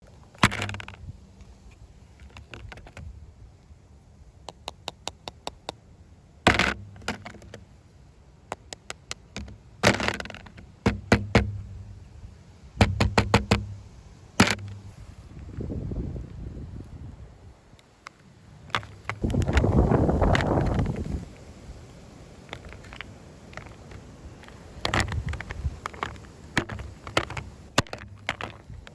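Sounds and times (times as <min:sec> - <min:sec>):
hard knocks and thuds: 0:09.3 - 0:12.0, 0:12.8 - 0:14.9.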